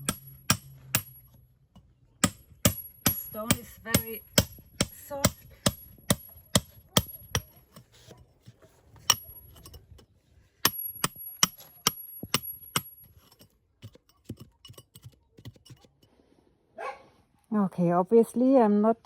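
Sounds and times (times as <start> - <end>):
hammer striking steel chisel: 0.0 - 8.3, 9.0 - 10.0, 10.6 - 15.9.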